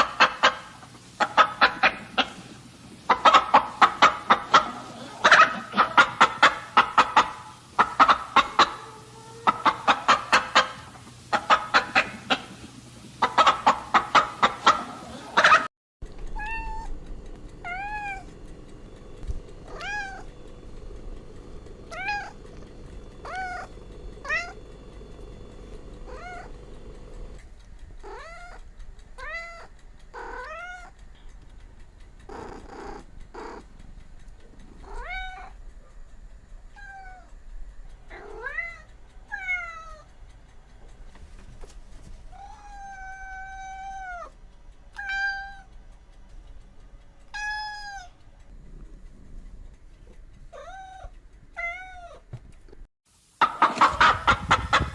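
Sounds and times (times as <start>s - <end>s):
cats meowing: 8.4s - 9.7s, 16.2s - 18.4s, 19.4s - 24.9s, 25.9s - 31.0s, 32.2s - 33.7s, 34.8s - 35.6s, 36.7s - 37.4s, 38.1s - 40.1s, 42.3s - 45.8s, 47.3s - 48.2s, 50.4s - 52.4s.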